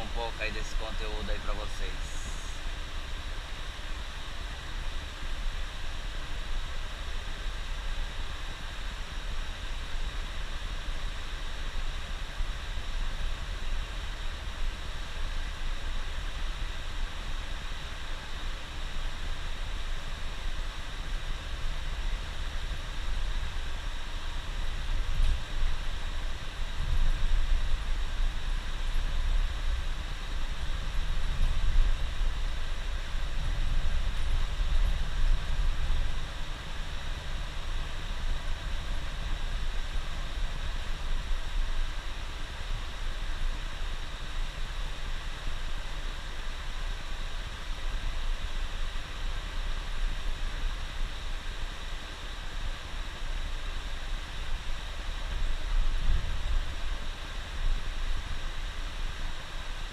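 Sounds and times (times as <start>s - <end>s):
constant hiss: 0.0s - 59.9s.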